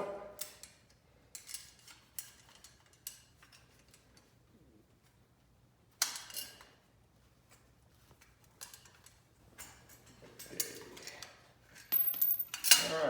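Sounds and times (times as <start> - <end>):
metal clinks and clacks: 8.6 - 11.2, 11.8 - 13.0.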